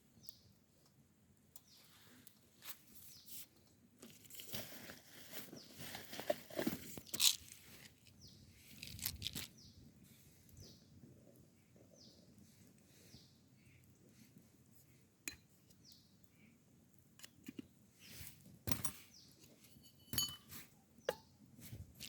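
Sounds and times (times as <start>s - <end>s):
crunching handling noises: 2.6s - 9.7s
bird chirping: 10.6s - 11.0s.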